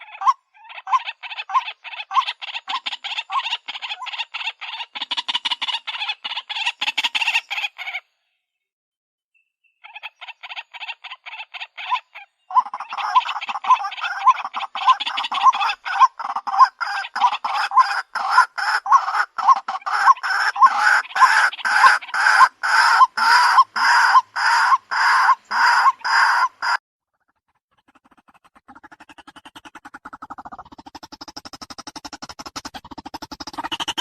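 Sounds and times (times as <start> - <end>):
bird clucking calls: 0.0 - 8.0, 9.8 - 26.8, 27.4 - 34.0.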